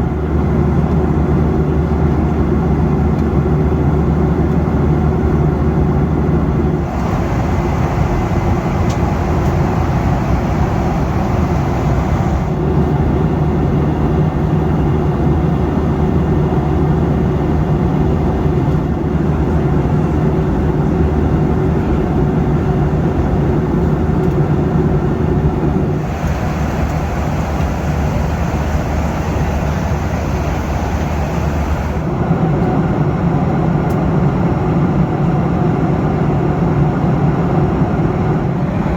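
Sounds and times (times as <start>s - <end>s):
low engine drone: 0.0s - 35.1s
rushing airflow: 6.5s - 13.2s, 25.6s - 32.4s.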